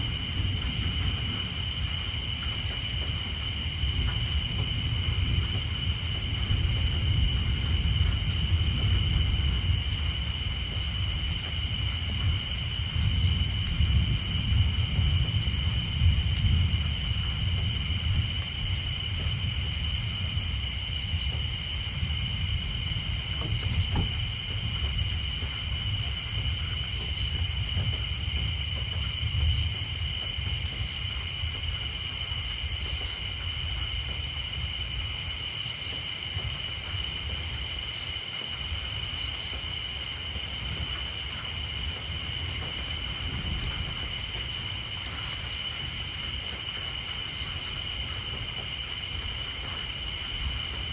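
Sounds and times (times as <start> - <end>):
distant thunder rumbling: 0.0 - 37.6, 38.6 - 50.9
rain on a tin roof: 0.0 - 50.9
tree frogs chorus: 0.0 - 50.9.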